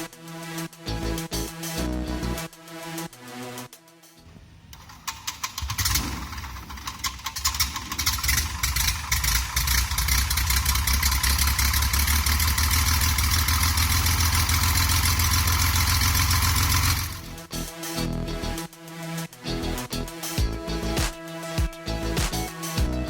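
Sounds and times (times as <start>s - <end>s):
aircraft engine starting up: 4.8s - 17.3s.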